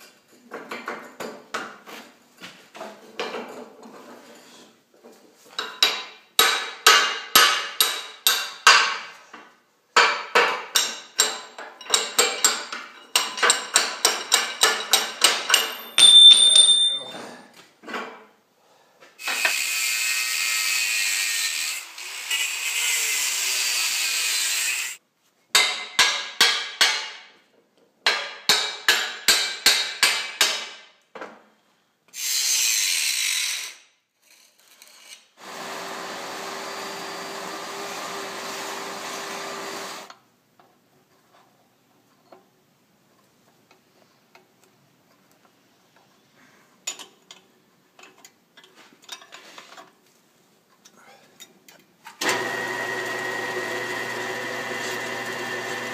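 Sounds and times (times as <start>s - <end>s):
power tool running: 35.4s - 40.1s, 52.2s - 55.9s.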